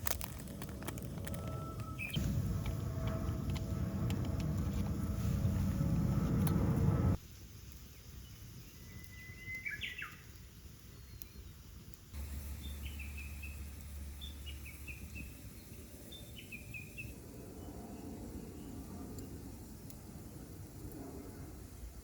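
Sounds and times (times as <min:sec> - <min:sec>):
faint outdoor background noise: 0:00.0 - 0:22.0
birds chirping: 0:01.2 - 0:07.2, 0:12.2 - 0:17.1.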